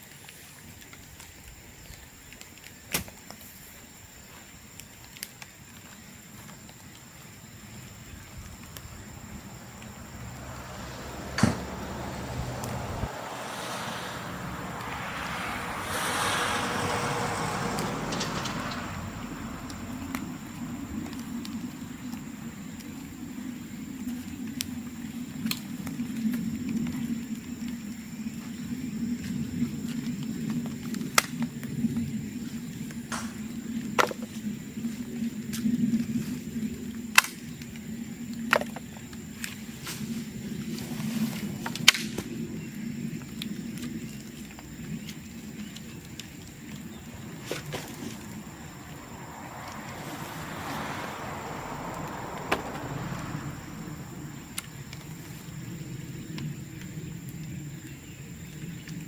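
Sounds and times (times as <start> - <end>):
bonfire crackling: 0.1 - 28.4, 29.0 - 59.0
bamboo stems popping: 41.7 - 42.4.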